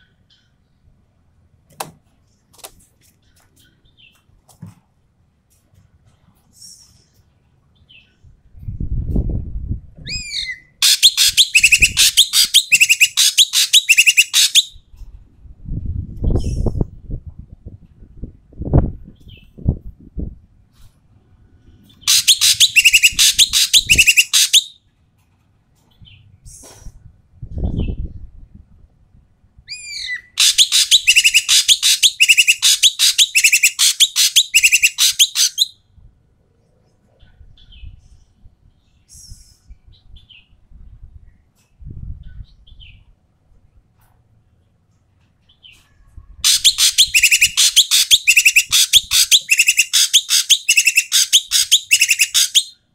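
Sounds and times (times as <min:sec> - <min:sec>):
bird calling: 0:10.1 - 0:14.8, 0:22.0 - 0:24.8, 0:29.7 - 0:35.8, 0:46.4 - 0:52.9
bird rattling chatter: 0:46.5 - 0:52.7.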